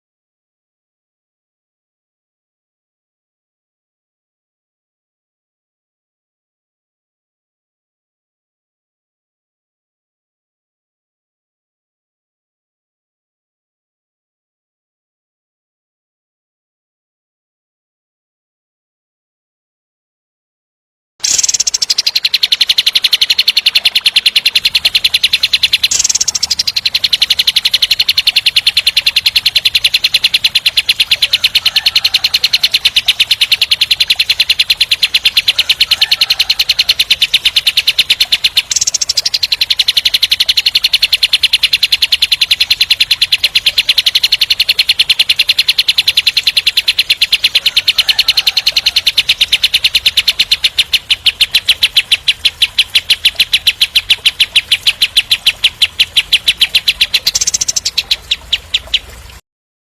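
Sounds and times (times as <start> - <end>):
songbird rolling trill: 21.2 - 59.2.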